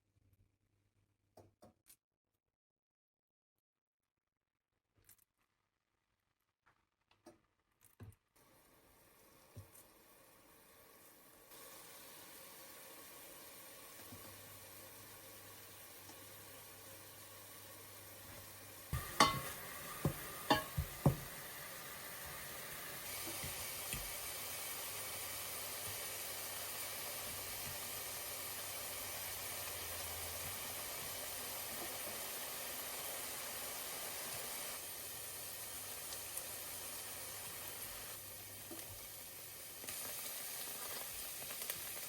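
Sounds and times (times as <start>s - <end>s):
food sizzling in a pan: 8.4s - 42.0s
kitchenware clinking and knocking: 19.0s - 21.4s.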